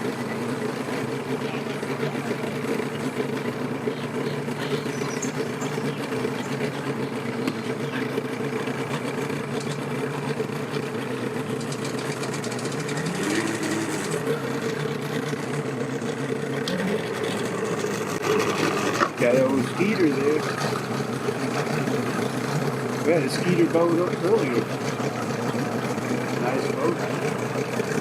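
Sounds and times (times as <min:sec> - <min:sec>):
engines idling: 0:00.0 - 0:28.0
engine revving: 0:00.7 - 0:28.0.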